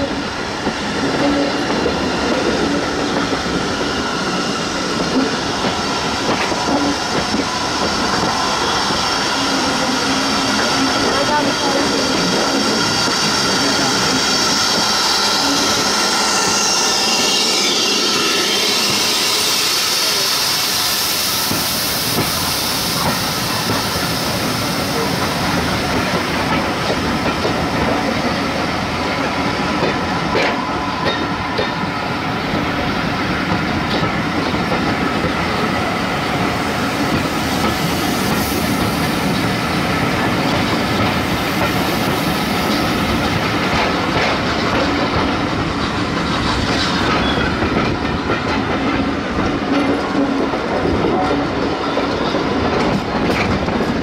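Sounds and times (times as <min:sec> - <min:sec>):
train hiss: 0:00.0 - 0:52.7.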